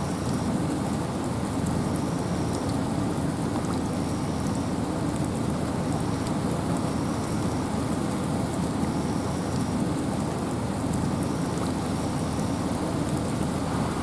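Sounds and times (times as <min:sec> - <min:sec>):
raindrops ticking: 0:00.2 - 0:14.0
deep rumble: 0:13.5 - 0:14.0
wind rushing: 0:13.5 - 0:14.0.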